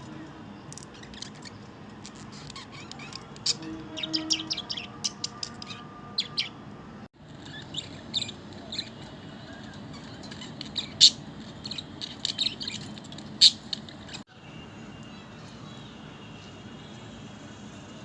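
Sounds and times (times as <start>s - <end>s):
loud budgie calls: 1.0s - 6.6s, 7.4s - 14.2s
budgies chirping: 7.4s - 14.2s.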